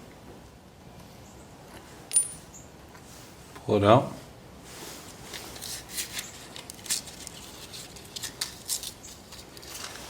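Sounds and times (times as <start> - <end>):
small metal parts clicking: 6.0 - 9.9.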